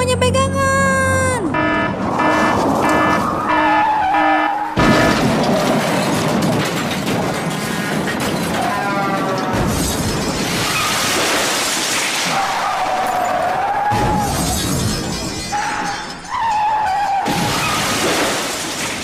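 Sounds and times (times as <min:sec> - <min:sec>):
warbling siren-like tone: 0:01.4 - 0:05.1
short electronic beeps: 0:01.6 - 0:04.6.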